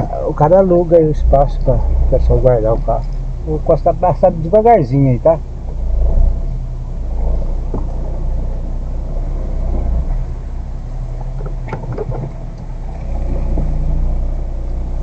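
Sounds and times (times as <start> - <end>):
car engine running low speed: 0.0 - 15.0.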